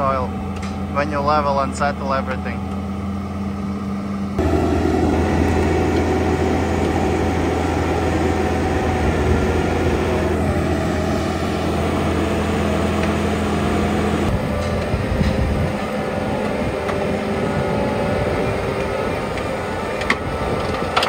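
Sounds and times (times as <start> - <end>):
diesel engine hum: 0.0 - 21.0
rotor grinding stumps and soil: 4.4 - 21.0.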